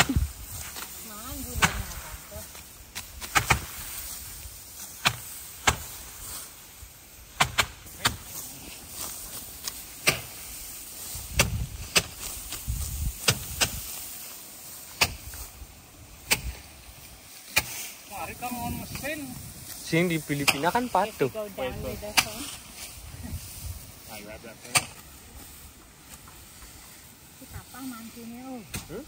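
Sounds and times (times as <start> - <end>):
rice stalks snapping: 0.0 - 18.0, 19.5 - 19.8
rustle of stalks: 0.0 - 29.0.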